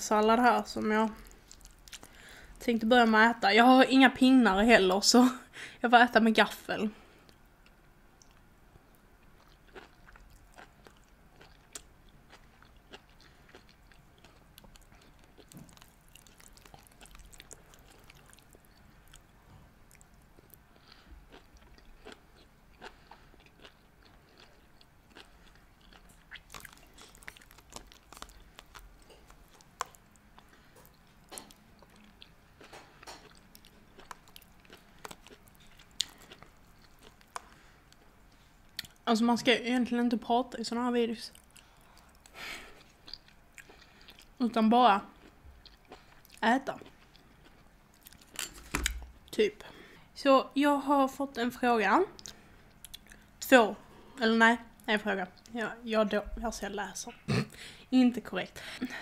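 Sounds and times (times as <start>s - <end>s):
chewing seaweed salad: 1.2s - 2.2s, 9.2s - 19.3s, 19.9s - 39.0s, 41.2s - 44.4s, 45.0s - 49.3s.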